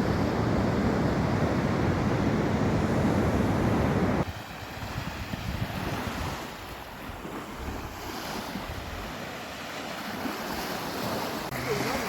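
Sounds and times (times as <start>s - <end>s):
wind buffeting microphone: 0.0s - 9.1s
sea waves washing: 0.0s - 12.0s.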